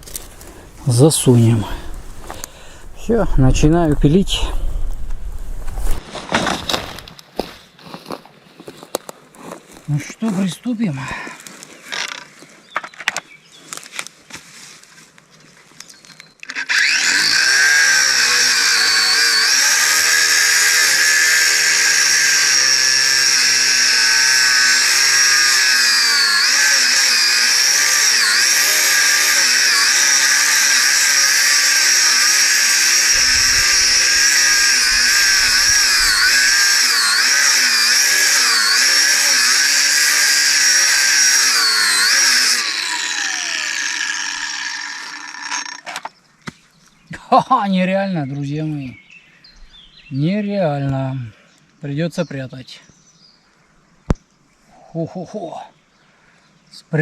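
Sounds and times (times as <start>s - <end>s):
power tool cutting iron: 16.4s - 46.0s.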